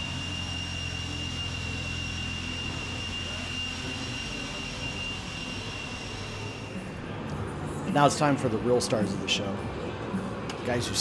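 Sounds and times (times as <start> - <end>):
low engine drone: 0.0 - 8.0
high-pitched whine: 0.0 - 8.5.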